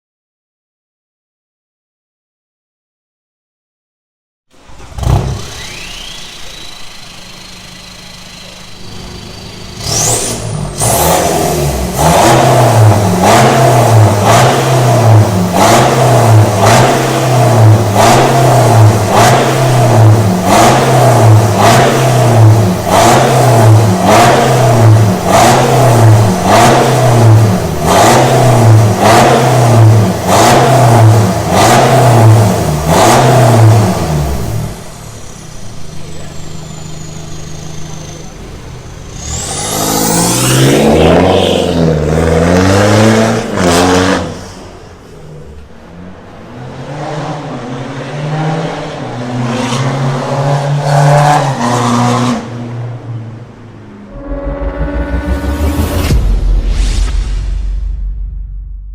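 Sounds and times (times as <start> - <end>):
diesel engine starting: 4.5 - 46.4, 53.9 - 57.2
engine revving: 4.6 - 52.8, 53.5 - 57.1.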